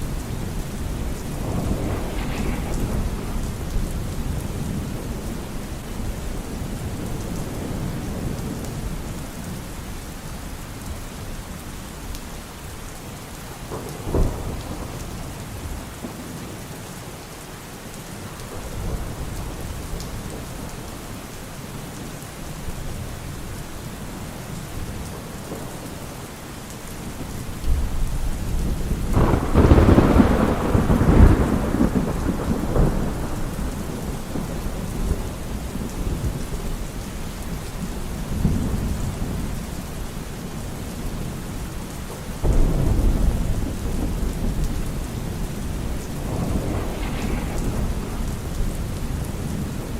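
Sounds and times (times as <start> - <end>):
thunder rumbling and cracking: 0.0 - 10.8, 13.6 - 16.6, 18.3 - 20.9, 27.0 - 49.9
steady rain: 0.0 - 49.9.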